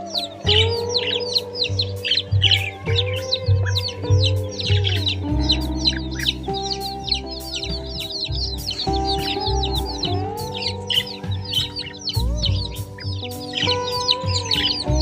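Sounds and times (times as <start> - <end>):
background music with bass: 0.0 - 15.0
chicks peeping: 0.0 - 15.0.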